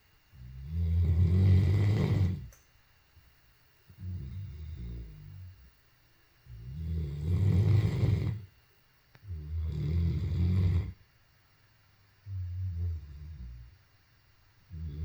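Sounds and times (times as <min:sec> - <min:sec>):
dog snoring: 0:00.3 - 0:02.6, 0:03.9 - 0:05.7, 0:06.5 - 0:08.5, 0:09.2 - 0:11.0, 0:12.2 - 0:13.8, 0:14.7 - 0:15.0.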